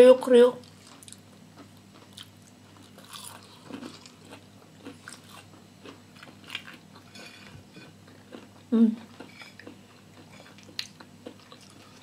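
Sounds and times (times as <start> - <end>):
crunching crispy fried food: 2.0 - 7.5.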